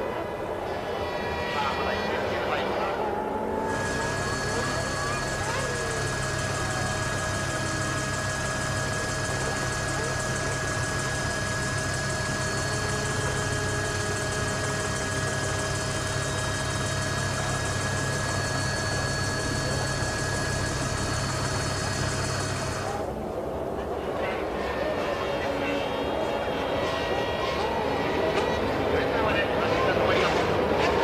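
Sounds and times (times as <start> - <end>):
race car engines idling: 3.0 - 23.1.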